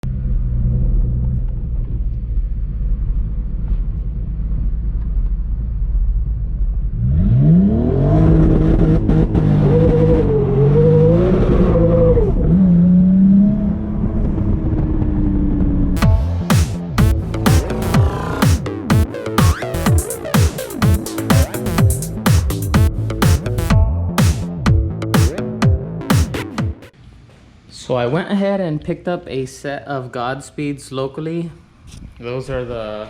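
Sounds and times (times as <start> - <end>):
car engine idling and revving: 0.0 - 23.8.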